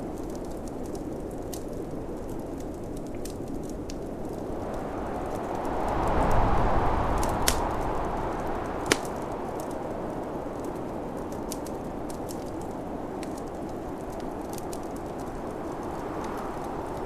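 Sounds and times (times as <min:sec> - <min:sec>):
wood fire crackling: 0:00.0 - 0:17.0
wind rushing: 0:04.3 - 0:10.6.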